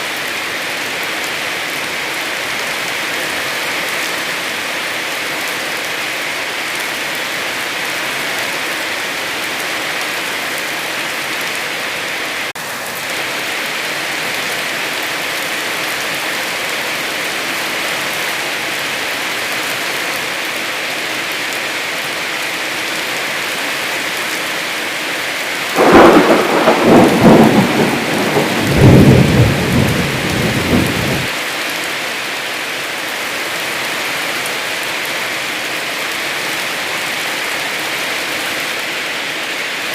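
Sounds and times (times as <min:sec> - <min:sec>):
heavy rain falling: 0:00.0 - 0:39.9
crackling thunder clap: 0:25.8 - 0:31.3.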